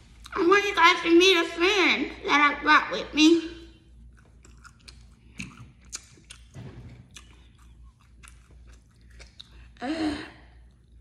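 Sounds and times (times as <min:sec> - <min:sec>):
wet chewing and lip-smacking: 0:04.0 - 0:09.8.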